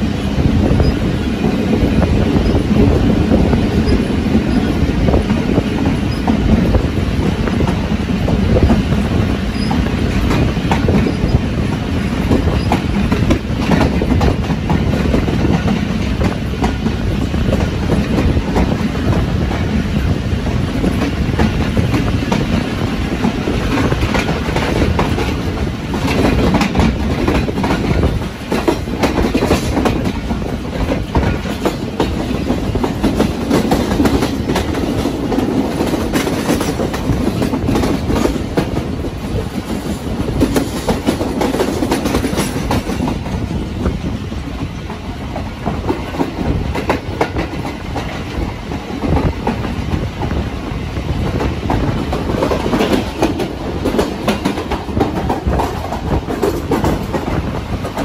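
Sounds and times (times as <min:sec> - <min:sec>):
train rumbling: 0:00.0 - 0:58.0
wheels clattering over rail joints: 0:00.7 - 0:44.0.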